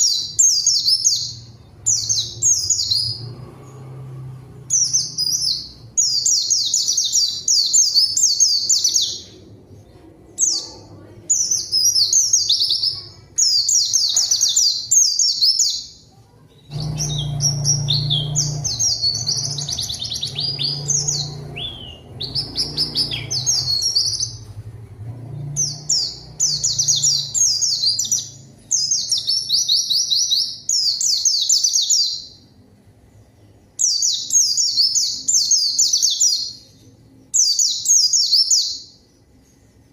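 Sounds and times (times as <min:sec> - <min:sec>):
bird chattering trilled song: 0:16.7 - 0:24.5.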